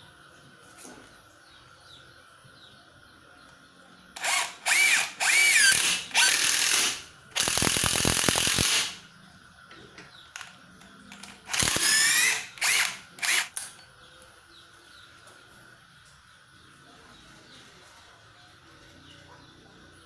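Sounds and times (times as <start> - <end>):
impact driver motor whine: 4.2 - 9.0, 11.2 - 13.6.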